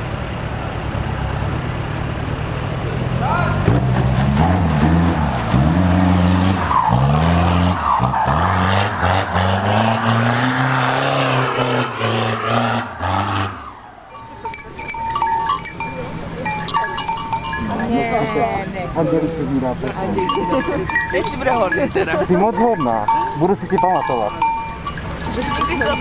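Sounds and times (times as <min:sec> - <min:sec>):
off-road engine revving: 0:00.0 - 0:26.0
tyres rushing: 0:03.2 - 0:26.0
small bells jingling: 0:14.0 - 0:26.0.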